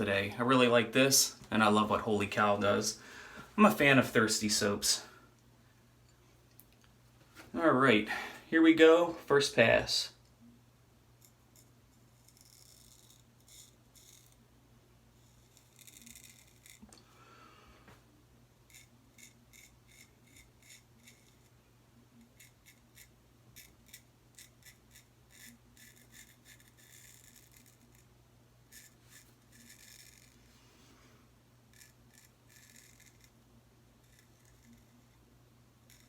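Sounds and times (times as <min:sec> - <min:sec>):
razor scraping stubble: 0:15.2 - 0:16.9, 0:18.7 - 0:21.5, 0:22.2 - 0:28.1, 0:28.7 - 0:30.7, 0:31.7 - 0:33.4, 0:34.0 - 0:35.2.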